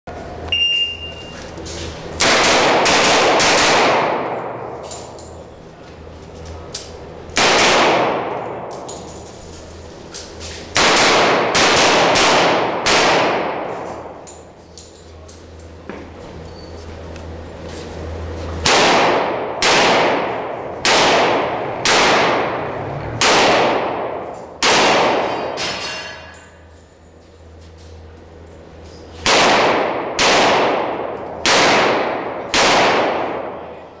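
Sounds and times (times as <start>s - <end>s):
gunshots with long echo: 2.2s - 4.8s, 7.4s - 8.7s, 10.8s - 14.2s, 18.6s - 25.6s, 29.2s - 33.7s.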